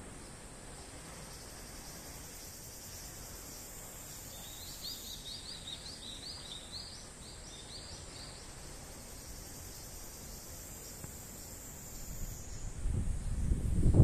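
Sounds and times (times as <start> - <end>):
high insect hiss: 0.0 - 14.0
bird chirping: 4.1 - 9.3.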